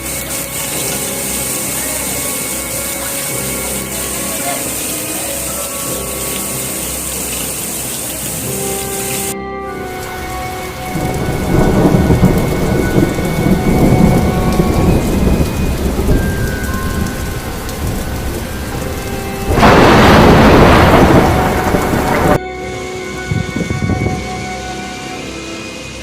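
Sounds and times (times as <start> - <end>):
heavy rain: 0.0 - 26.0
thunder rumbling: 9.9 - 22.4, 23.2 - 24.6.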